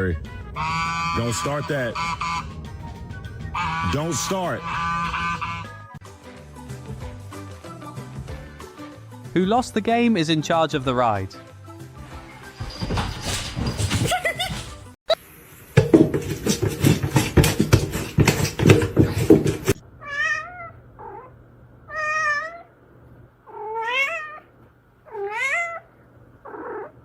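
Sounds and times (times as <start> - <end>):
cat meowing: 20.0 - 21.3, 21.9 - 22.7, 23.5 - 24.5, 25.1 - 25.9.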